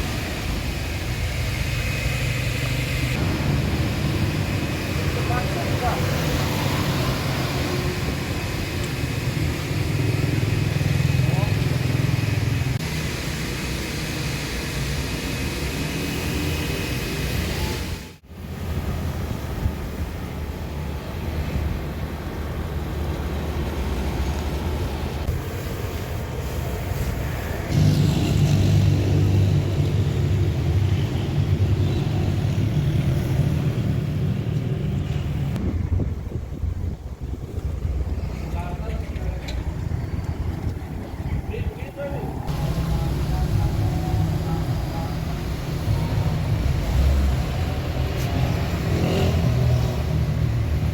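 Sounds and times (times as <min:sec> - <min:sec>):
hiss: 0:25.3 - 0:28.0
machine humming with hiss: 0:42.5 - 0:48.2.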